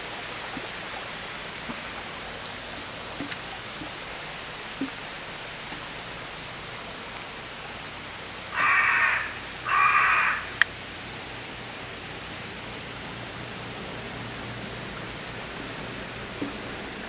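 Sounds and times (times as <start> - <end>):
steady hiss: 0.0 - 17.0
bird harsh drawn-out calls: 8.5 - 10.6.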